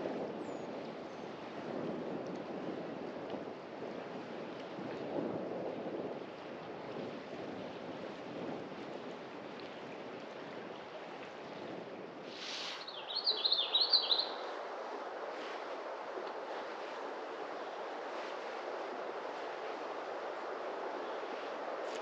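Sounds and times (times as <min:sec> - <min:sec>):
songbird chirping: 0:12.4 - 0:14.6.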